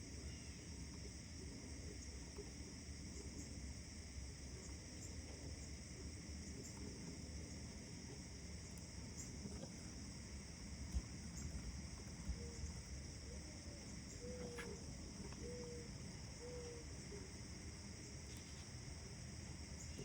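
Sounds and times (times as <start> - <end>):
high insect trill: 3.1 - 20.0.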